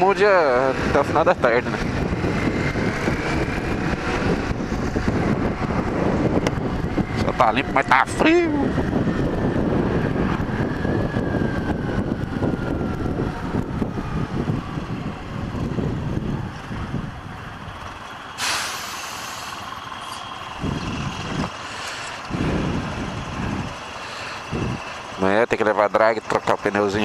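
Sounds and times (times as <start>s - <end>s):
wind rumble: 0.0s - 26.7s
motorcycle engine: 0.0s - 27.0s
traffic engine rumbles: 0.0s - 27.0s
air brakes hissing: 18.4s - 19.7s.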